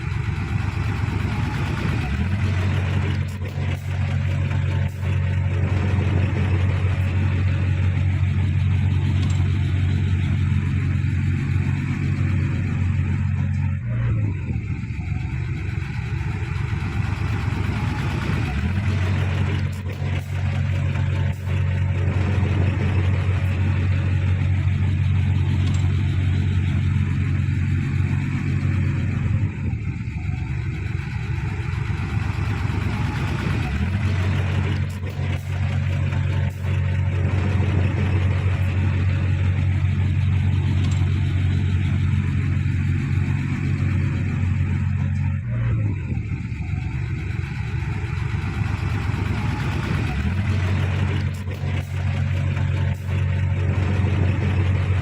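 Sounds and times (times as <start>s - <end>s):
heavy diesel engine rumbling: 0.0s - 55.0s.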